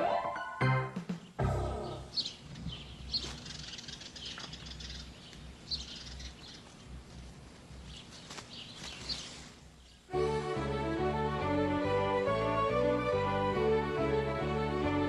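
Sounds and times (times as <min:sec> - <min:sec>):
faint low hum: 0:01.4 - 0:12.7
small animals chirping: 0:01.6 - 0:07.0.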